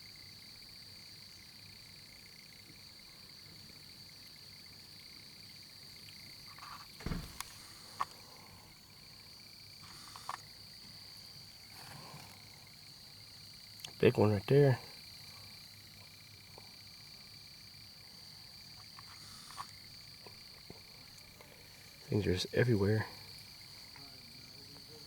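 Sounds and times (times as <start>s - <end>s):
night insects chorus: 0.0s - 25.0s
knocks and rustles: 6.9s - 8.0s.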